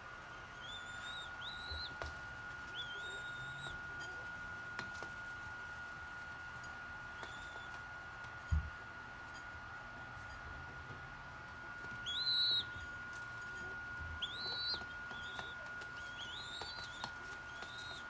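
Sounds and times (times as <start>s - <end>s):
high whistled bird peeps: 0.6s - 2.0s, 2.7s - 4.1s, 7.2s - 7.8s, 12.0s - 12.9s, 14.2s - 18.0s.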